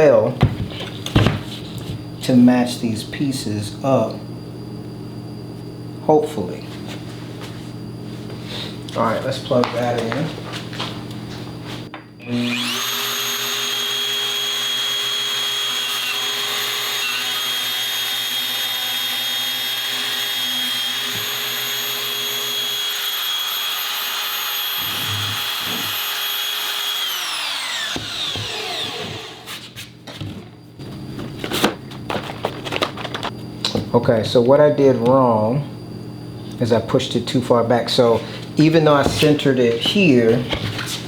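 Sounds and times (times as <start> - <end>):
power tool motor whining: 12.2 - 29.8.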